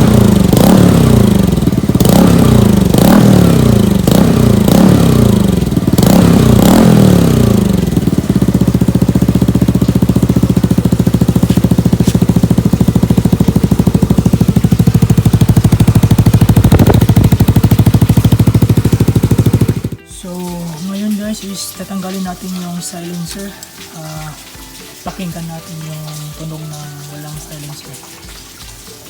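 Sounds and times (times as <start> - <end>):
scooter engine revving and idling: 0.0 - 20.5.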